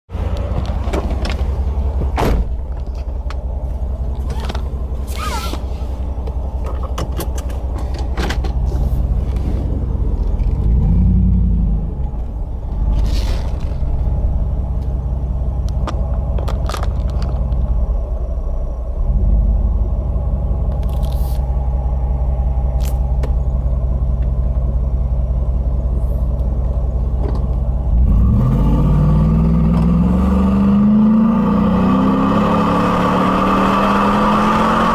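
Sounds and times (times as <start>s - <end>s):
car engine revving: 8.7s - 18.0s, 27.8s - 34.9s.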